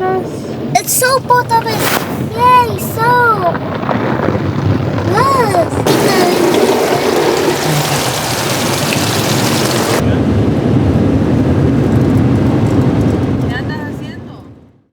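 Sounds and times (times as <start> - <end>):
steady low rumbling: 0.0 - 14.7
water spraying against car: 5.1 - 10.0.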